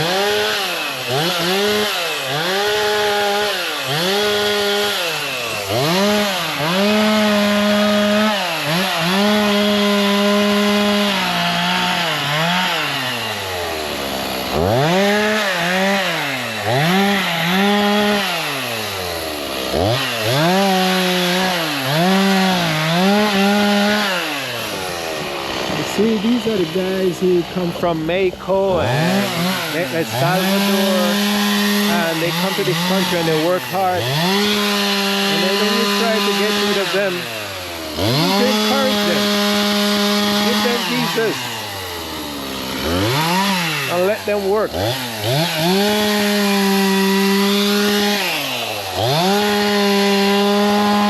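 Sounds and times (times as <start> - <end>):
chainsaw revving: 0.0 - 51.0.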